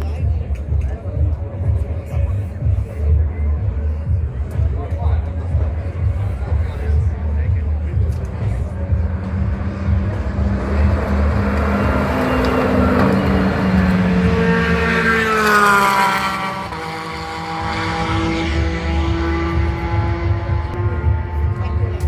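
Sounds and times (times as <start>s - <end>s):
steady engine note: 1.2s - 22.0s
race car passing at speed: 8.7s - 22.0s.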